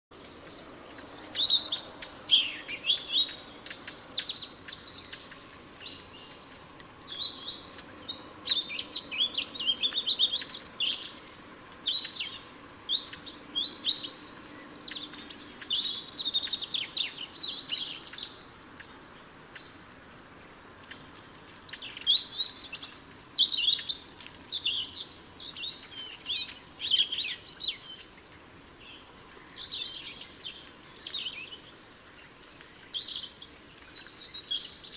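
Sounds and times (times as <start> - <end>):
songbirds chirping: 0.1 - 34.9.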